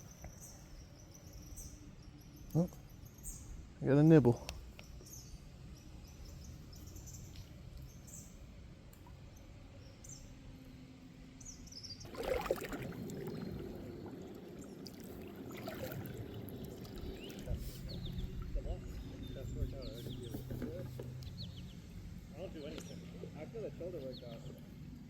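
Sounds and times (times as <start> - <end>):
water splashing around kayak: 12.0 - 21.1.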